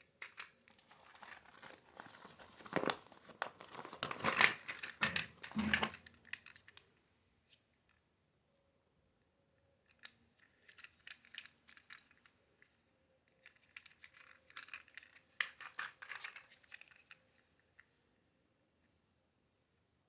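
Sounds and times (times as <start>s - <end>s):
small toy parts clicking: 9.9s - 12.4s, 13.3s - 17.2s.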